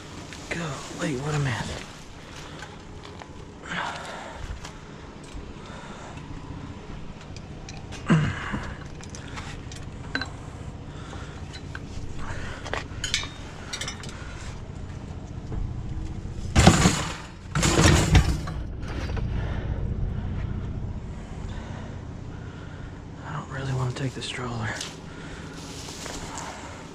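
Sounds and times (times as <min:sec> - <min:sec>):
clattering scrapes: 0:16.4 - 0:19.4
household items clinking and knocking: 0:16.6 - 0:18.6.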